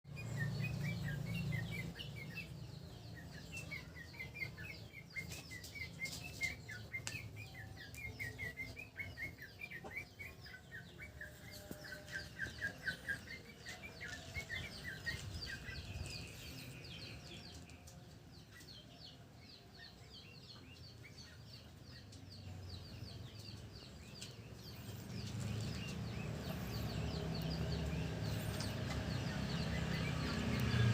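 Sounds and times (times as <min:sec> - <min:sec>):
bird chirping calls: 0:00.1 - 0:30.9.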